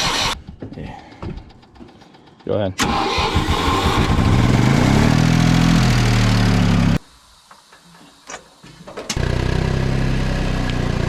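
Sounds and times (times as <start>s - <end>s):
tractor engine running: 0.0s - 7.0s.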